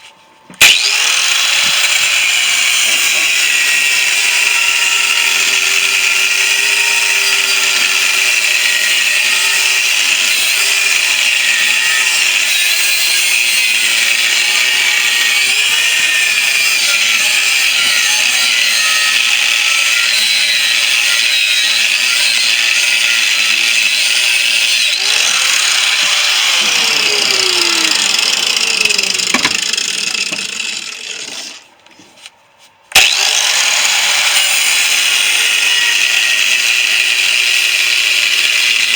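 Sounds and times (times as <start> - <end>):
angle grinder cutting steel: 0.6 - 31.7, 32.9 - 38.9.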